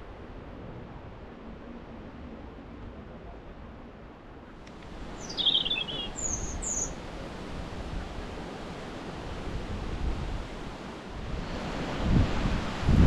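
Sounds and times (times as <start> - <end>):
wind rumble on microphone: 0.0 - 13.0
songbird singing: 4.7 - 7.0.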